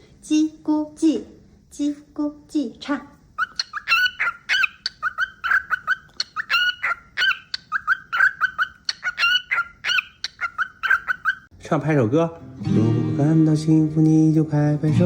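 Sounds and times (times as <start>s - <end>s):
cockatiel whistling and chirping: 3.4s - 11.5s.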